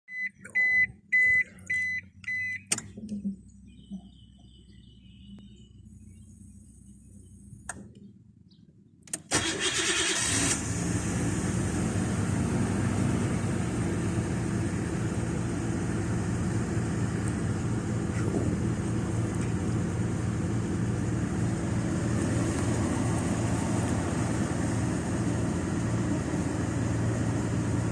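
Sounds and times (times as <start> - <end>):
short electronic beeps: 0.1 - 2.7
car engine starting and idling: 0.1 - 8.1, 9.0 - 27.9.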